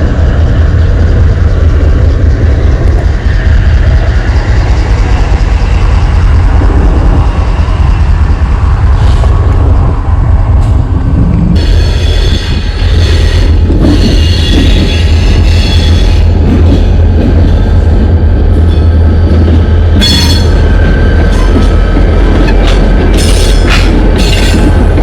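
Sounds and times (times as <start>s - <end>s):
freight train rumbling past: 0.0s - 25.0s
train wheels squealing: 11.6s - 16.9s, 20.0s - 21.8s, 22.4s - 24.8s.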